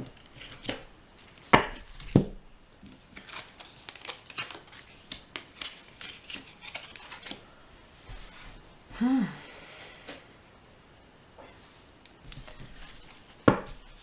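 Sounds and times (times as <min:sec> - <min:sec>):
cards shuffling: 0:00.1 - 0:02.2, 0:02.9 - 0:07.4, 0:12.3 - 0:14.0.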